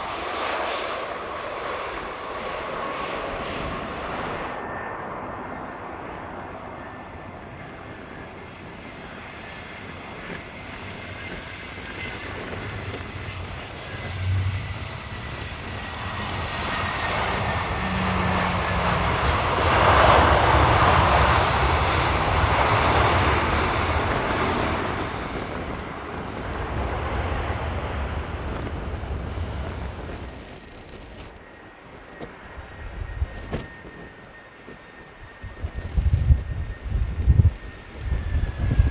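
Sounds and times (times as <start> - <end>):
jet airliner passing: 0.0 - 38.9
wind on microphone: 7.5 - 38.9
high whine: 12.1 - 21.3, 26.4 - 31.6.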